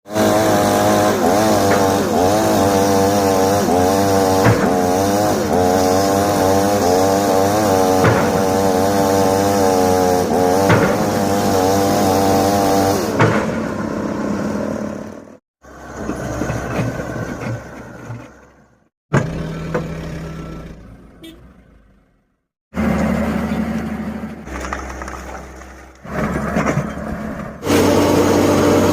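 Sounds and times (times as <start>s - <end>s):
excavator diesel engine: 0.1s - 28.9s
sharp knocks: 4.4s - 5.2s, 7.9s - 8.7s, 10.5s - 11.3s.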